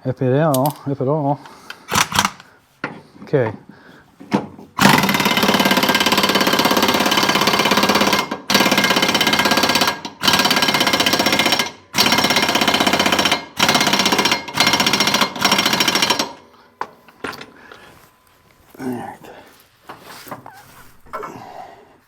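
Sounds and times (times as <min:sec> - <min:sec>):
impact wrench hammering: 0:04.8 - 0:17.6.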